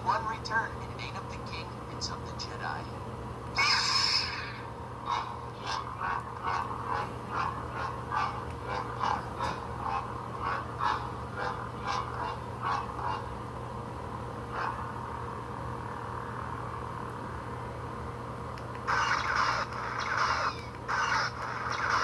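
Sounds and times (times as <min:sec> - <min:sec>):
steady low hum: 0:00.0 - 0:22.0
animal calling in short calls: 0:03.6 - 0:05.8.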